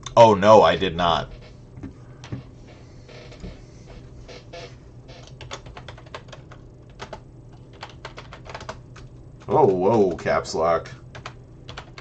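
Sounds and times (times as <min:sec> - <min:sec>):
keyboard typing: 0:05.1 - 0:10.2, 0:11.1 - 0:12.0.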